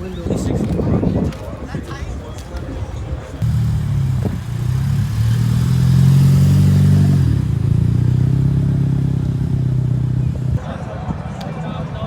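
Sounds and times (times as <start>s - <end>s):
car engine running loud: 3.4s - 10.6s.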